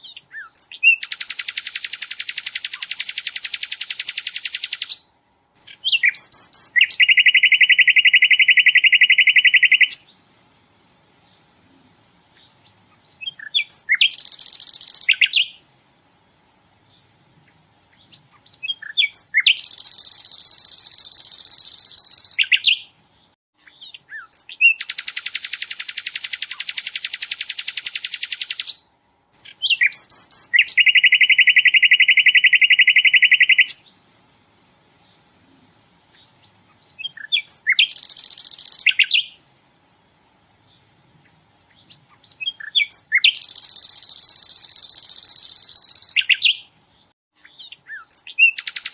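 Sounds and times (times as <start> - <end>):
bird singing rapid repeated notes: 0.0 - 10.2, 12.3 - 15.8, 16.8 - 34.0, 36.1 - 39.5, 40.6 - 48.9
bird chips: 23.8 - 28.8, 36.4 - 39.2, 41.8 - 46.6, 47.6 - 48.9.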